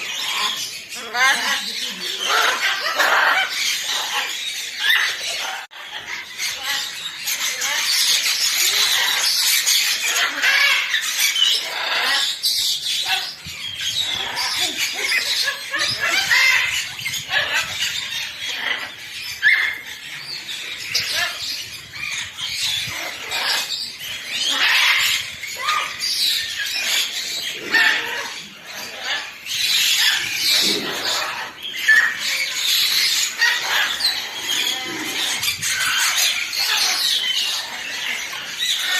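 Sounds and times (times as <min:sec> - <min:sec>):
birds chattering: 0:00.0 - 0:38.9.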